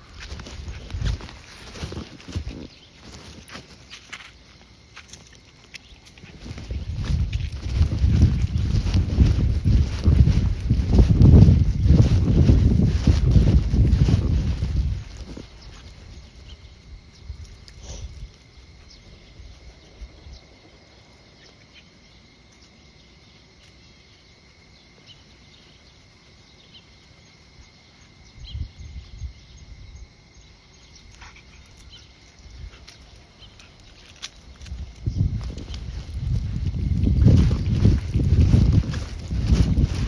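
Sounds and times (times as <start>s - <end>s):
wind buffeting microphone: 0.0s - 3.4s, 6.2s - 21.4s, 28.2s - 40.0s
insects calling: 0.0s - 40.0s.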